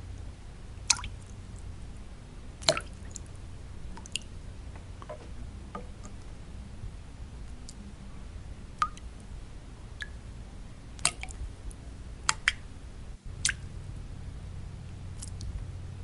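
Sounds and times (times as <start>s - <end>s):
steady low-pitched noise: 0.0s - 16.0s
water drops plinking: 2.6s - 3.2s.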